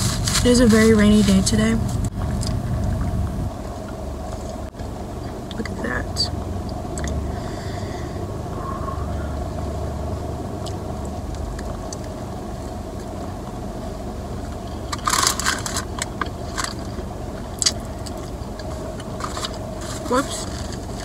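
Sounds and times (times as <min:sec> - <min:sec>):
steady low hum: 0:00.0 - 0:21.0
wet crackling mouth clicks: 0:06.7 - 0:07.2, 0:17.6 - 0:18.7.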